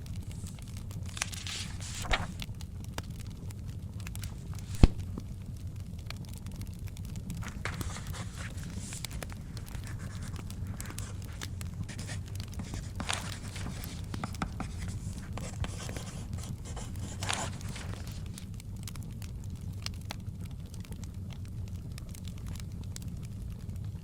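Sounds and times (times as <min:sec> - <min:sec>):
book pages turning: 0:00.0 - 0:02.6, 0:04.0 - 0:05.3, 0:07.2 - 0:18.6
wood fire crackling: 0:00.0 - 0:24.0.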